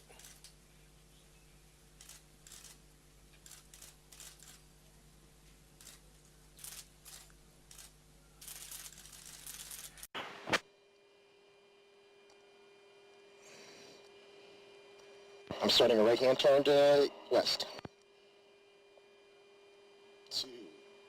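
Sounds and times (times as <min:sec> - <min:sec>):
faint electrical hum: 0:00.0 - 0:21.0
radio hiss and clicks: 0:17.5 - 0:17.9.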